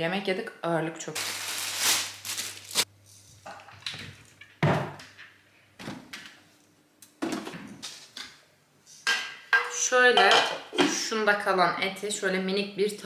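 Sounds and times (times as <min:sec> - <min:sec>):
kitchen knocks and thuds: 0:03.5 - 0:05.2, 0:07.2 - 0:07.8.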